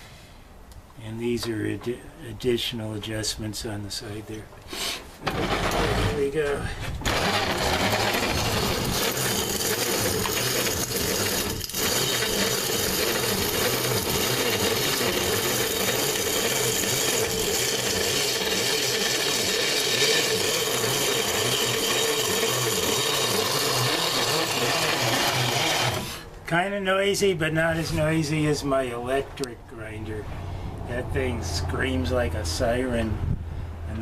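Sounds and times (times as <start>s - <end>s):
corn grinder gritty grinding: 4.8s - 26.3s.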